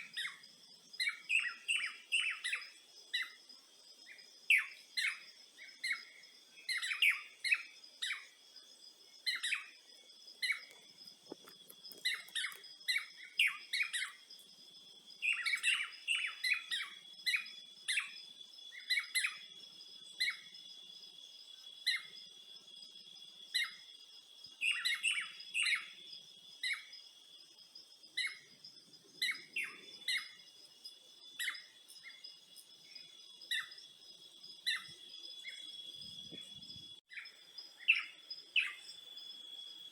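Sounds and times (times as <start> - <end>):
birds chirping: 0.0 - 8.4, 9.2 - 14.4, 15.1 - 19.5, 28.1 - 39.1
high insect trill: 0.0 - 39.9.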